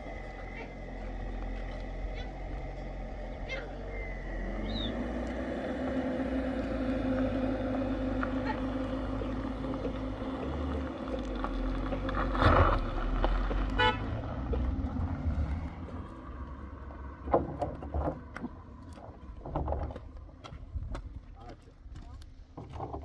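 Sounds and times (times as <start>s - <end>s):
vehicle engine humming: 0.0s - 22.6s
car horn toot: 13.7s - 14.2s.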